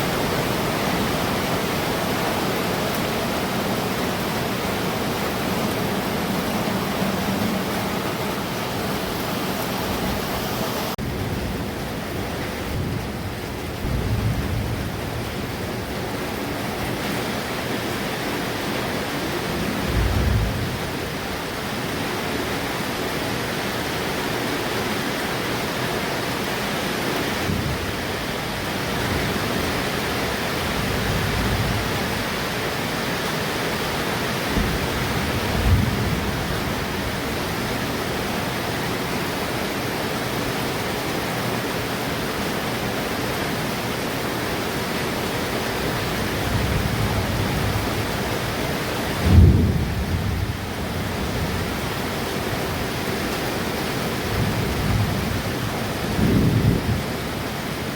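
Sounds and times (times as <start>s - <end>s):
thunder rumbles: 0.0s - 18.0s, 19.2s - 22.0s, 27.4s - 33.5s, 34.2s - 38.6s, 45.8s - 53.0s, 54.1s - 57.6s
heavy rain falling: 0.0s - 57.9s.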